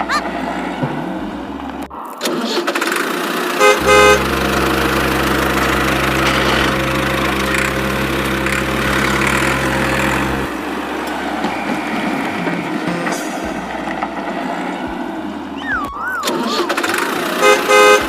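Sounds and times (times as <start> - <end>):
constant hiss: 3.4 - 12.6
horn tooting: 3.6 - 14.0, 16.2 - 18.0
low motor hum: 3.7 - 12.4.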